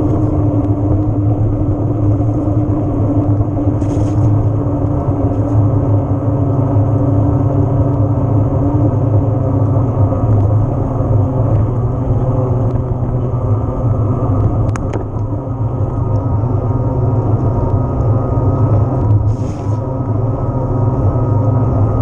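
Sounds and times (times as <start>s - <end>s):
bike tyre noise: 0.0s - 6.0s, 19.1s - 20.1s
wind buffeting microphone: 0.0s - 22.0s.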